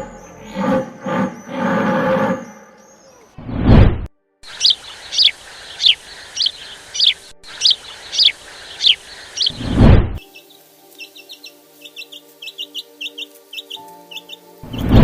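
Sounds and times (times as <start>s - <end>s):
bird chirping: 0.0s - 3.4s, 4.4s - 15.0s
loud whooshes: 3.4s - 4.1s, 9.5s - 10.2s.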